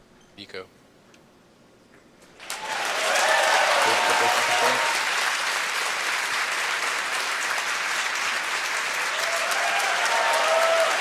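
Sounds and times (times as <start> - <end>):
crowd applauding and cheering: 2.4 - 11.0.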